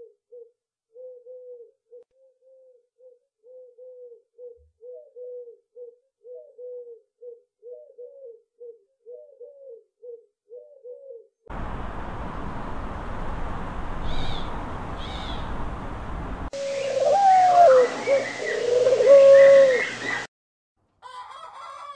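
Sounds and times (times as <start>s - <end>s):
pigeon cooing: 0.0s - 11.3s, 16.6s - 20.2s
loud steady rushing noise: 11.5s - 16.7s
high bird chirps: 12.4s - 18.6s.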